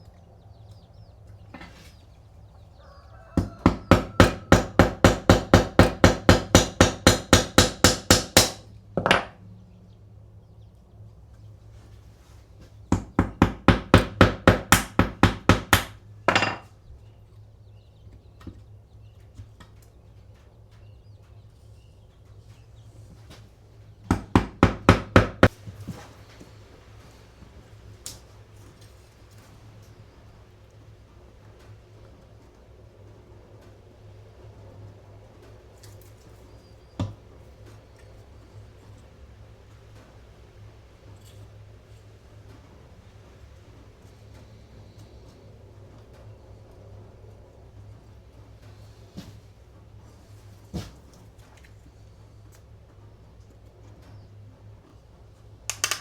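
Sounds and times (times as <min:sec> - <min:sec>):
hammer tapping: 0:03.4 - 0:09.4, 0:12.9 - 0:16.6, 0:24.1 - 0:25.6, 0:55.7 - 0:56.0.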